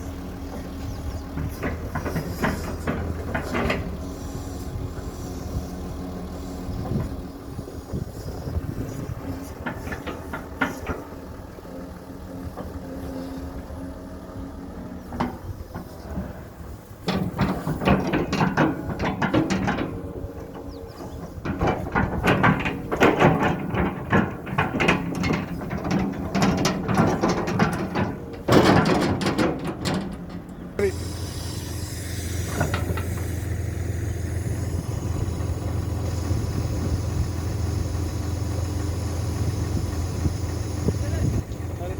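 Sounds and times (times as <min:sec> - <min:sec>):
excavator diesel engine running: 0:00.0 - 0:41.9
knocks and clatter: 0:00.2 - 0:04.1, 0:08.6 - 0:13.0, 0:15.0 - 0:30.9, 0:32.5 - 0:33.4.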